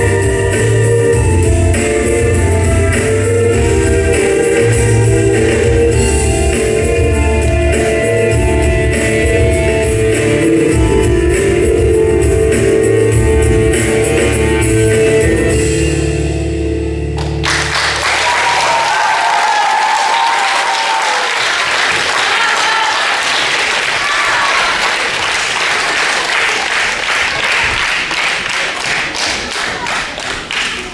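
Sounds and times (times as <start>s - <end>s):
audience applause: 17.2s - 30.9s.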